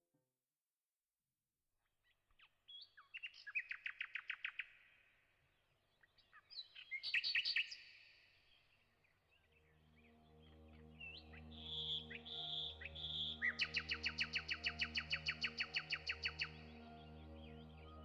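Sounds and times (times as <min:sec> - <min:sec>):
songbird singing: 0:05.9 - 0:18.0.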